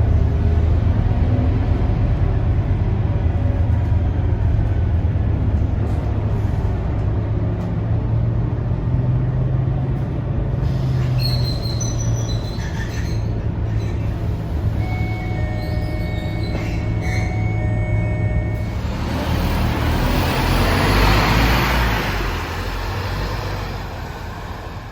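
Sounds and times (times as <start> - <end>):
bus diesel engine running: 0.0 - 24.9
brakes squealing: 10.6 - 24.9.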